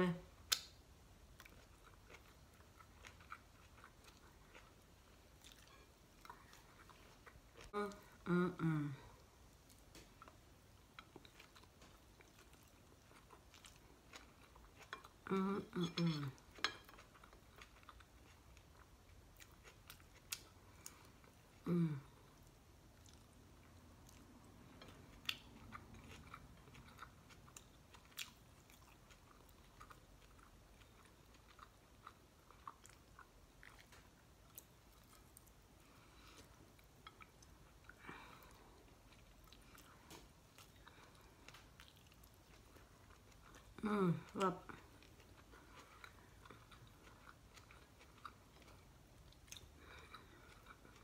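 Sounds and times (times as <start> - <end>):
chewing and crunching food: 0.3 - 51.0
person humming: 7.8 - 9.2, 21.6 - 22.2, 43.8 - 44.6.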